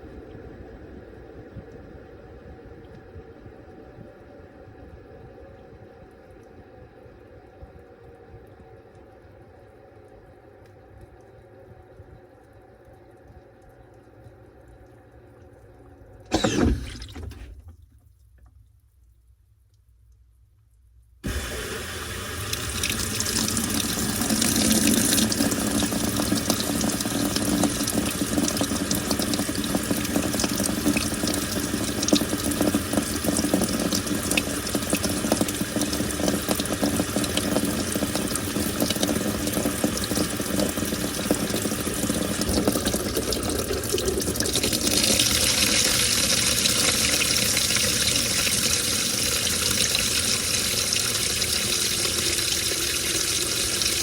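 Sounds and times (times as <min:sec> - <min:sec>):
water rushing into washing machine: 0:14.2 - 0:17.9, 0:21.2 - 0:54.0.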